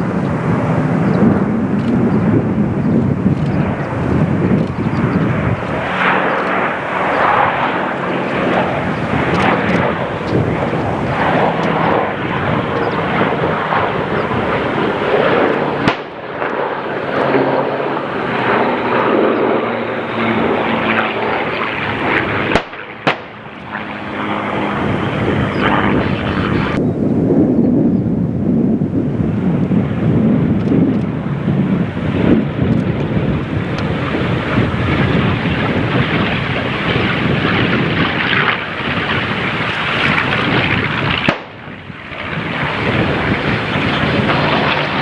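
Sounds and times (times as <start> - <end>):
propeller aircraft droning past: 0.0 - 45.0
sharp clicks: 1.8 - 2.0, 3.0 - 3.6, 4.5 - 5.3, 6.2 - 7.2, 8.9 - 10.8, 11.5 - 11.8, 30.6 - 31.1.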